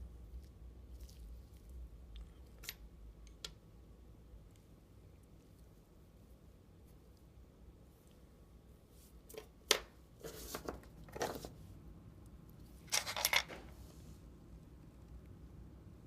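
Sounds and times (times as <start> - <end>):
metal parts rattling scrapes: 12.9 - 13.6.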